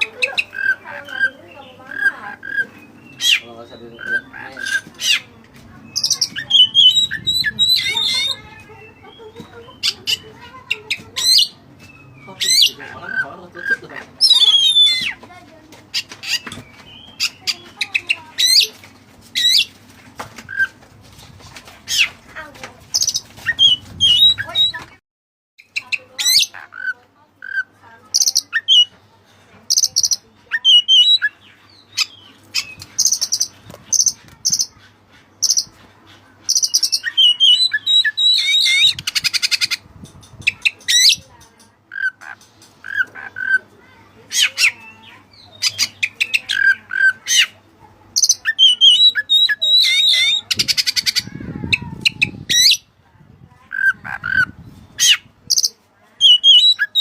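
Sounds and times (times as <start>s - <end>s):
magpie-robin singing: 0.0s - 19.8s, 21.9s - 22.2s, 22.9s - 25.0s, 25.6s - 29.0s, 29.7s - 52.9s, 53.6s - 57.0s
buzzy bird trill: 5.9s - 15.2s, 36.5s - 43.6s, 48.2s - 52.8s, 53.7s - 57.0s.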